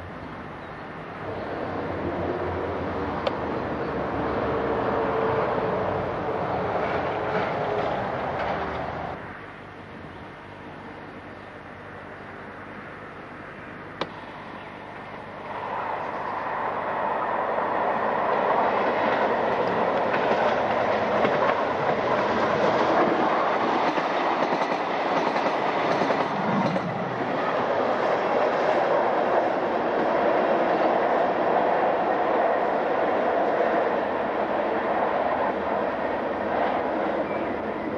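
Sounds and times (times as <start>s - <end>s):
railcar running noise: 0.0s - 37.9s
wheels clacking over rail joints: 6.7s - 9.2s, 18.7s - 29.2s.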